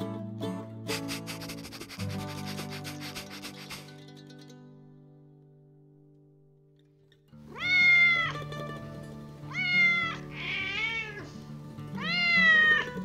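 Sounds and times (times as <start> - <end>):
soft background music: 0.0 - 6.0, 7.1 - 13.0
cat meowing: 7.5 - 8.4, 9.5 - 11.4, 12.0 - 13.0.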